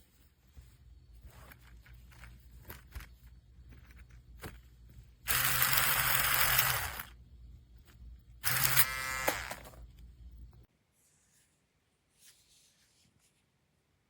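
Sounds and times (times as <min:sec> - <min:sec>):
electric shaver motor buzzing: 0:05.3 - 0:07.1, 0:08.4 - 0:09.7.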